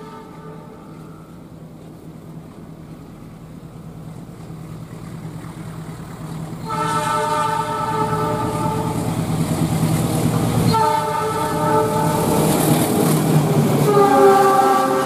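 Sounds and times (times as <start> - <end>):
locomotive horn chord: 0.0 - 1.4, 6.6 - 9.2, 10.6 - 12.7, 13.8 - 15.0
diesel locomotive engine humming: 0.0 - 15.0.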